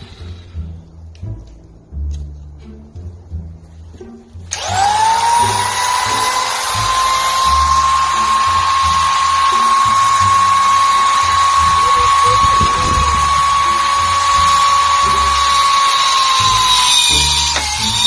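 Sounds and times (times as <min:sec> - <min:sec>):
loud hiss: 0:00.0 - 0:00.8, 0:04.5 - 0:18.0
power tool motor whine: 0:04.5 - 0:18.0.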